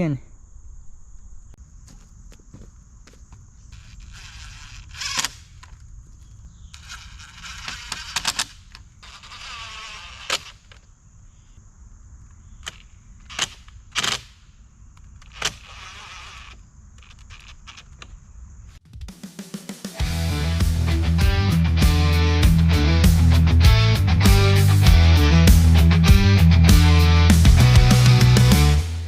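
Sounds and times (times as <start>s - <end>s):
rustling and scraping: 1.8s - 11.0s, 12.3s - 18.8s.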